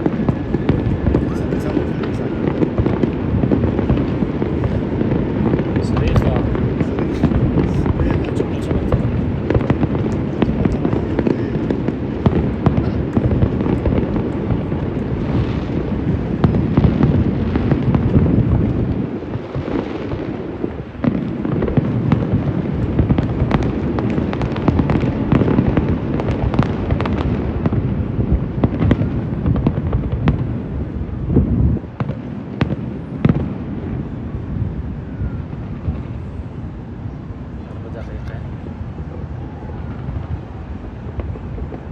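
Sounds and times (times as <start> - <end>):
heavy low rumble: 0.0 - 19.2
fireworks bangs and crackles: 0.0 - 41.9.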